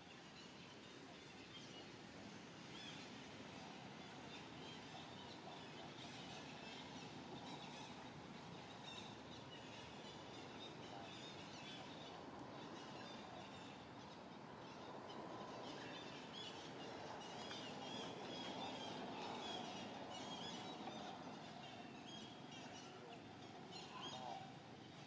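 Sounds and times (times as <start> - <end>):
steady background hiss: 0.0 - 25.0.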